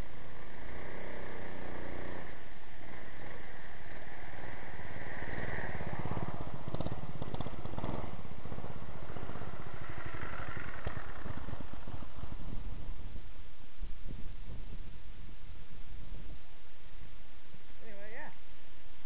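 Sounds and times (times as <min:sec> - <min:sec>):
minibike engine running: 0:00.0 - 0:13.2.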